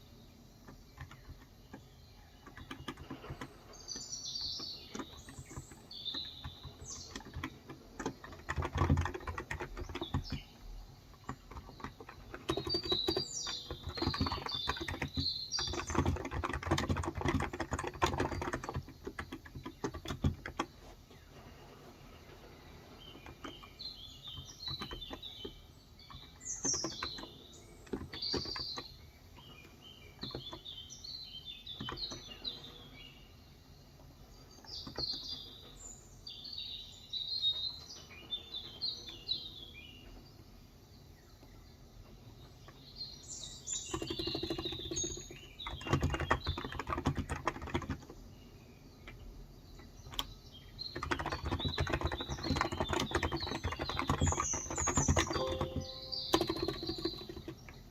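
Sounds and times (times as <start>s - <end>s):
birds chirping: 0.0s - 57.9s
typing on a keyboard: 0.6s - 20.8s, 23.1s - 30.7s, 31.7s - 32.5s, 34.6s - 35.5s, 43.6s - 48.2s, 49.9s - 57.9s.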